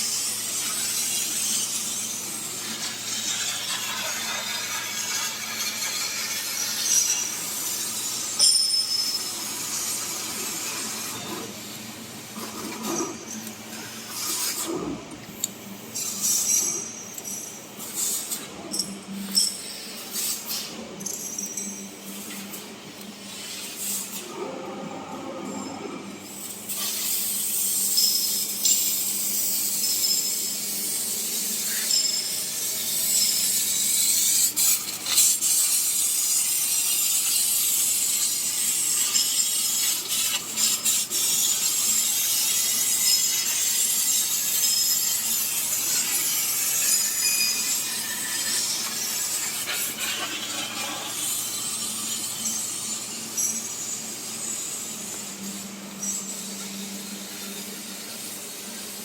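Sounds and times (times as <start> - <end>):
laser cutter hissing: 0.0 - 8.4.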